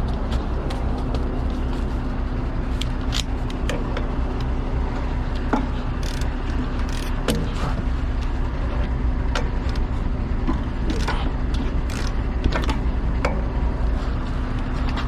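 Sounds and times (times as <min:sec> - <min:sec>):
heavy vehicle rumbling: 0:00.0 - 0:15.0
short clicks and rattles: 0:06.0 - 0:07.3, 0:10.9 - 0:12.8.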